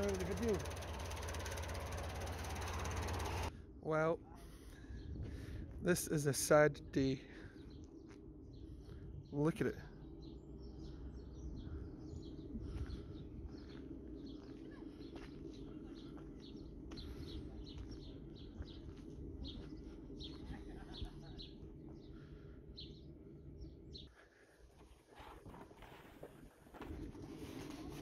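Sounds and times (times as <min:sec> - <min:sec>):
small birds chirping: 0:00.0 - 0:03.5, 0:06.5 - 0:24.2
steady low hum: 0:00.0 - 0:24.4.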